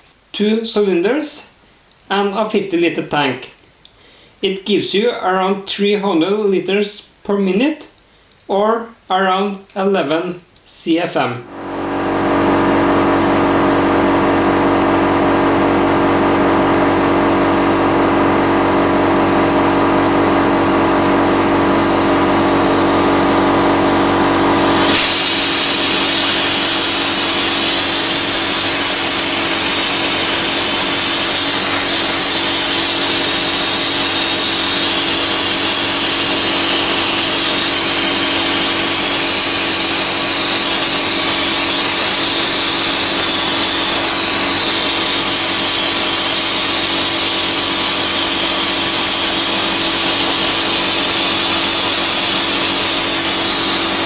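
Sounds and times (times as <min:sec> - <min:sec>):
air compressor humming: 0:11.5 - 0:54.0
loud sandblasting hiss: 0:11.8 - 0:54.0.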